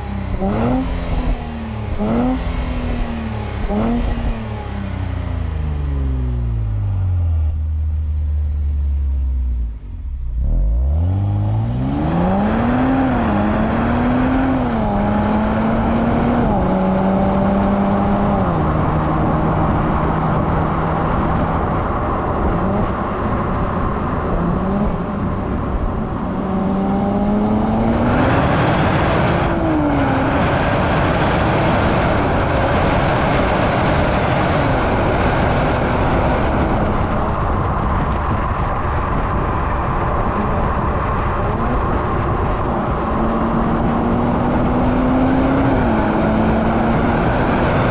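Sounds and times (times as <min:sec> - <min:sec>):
car engine revving with gear changes: 0:00.0 - 0:47.9
road and wind noise hiss: 0:00.0 - 0:47.9.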